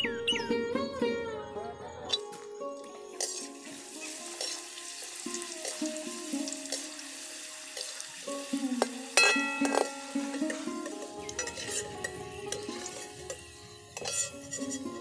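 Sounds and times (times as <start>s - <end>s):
oil sizzling: 2.8s - 15.0s
ladle clattering against pan: 8.8s - 15.0s.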